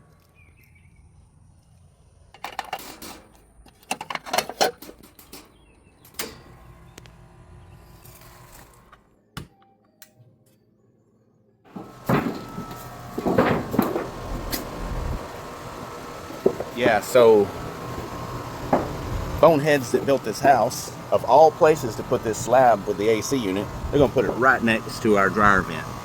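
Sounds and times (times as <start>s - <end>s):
tools and parts clicking: 2.3s - 6.5s
condenser fan running: 6.2s - 8.9s, 11.7s - 26.0s.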